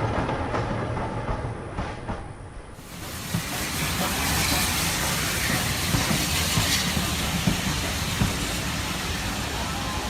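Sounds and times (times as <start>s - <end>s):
model steam train hissing: 2.8s - 10.0s.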